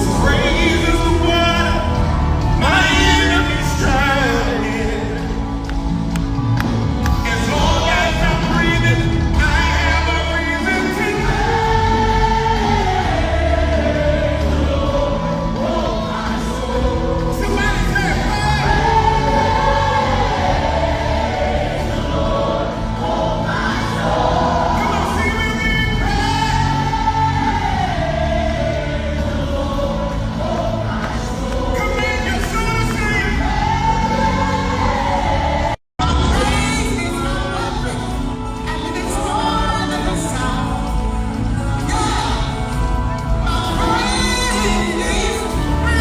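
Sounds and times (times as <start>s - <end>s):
gospel choir singing: 0.0s - 46.0s.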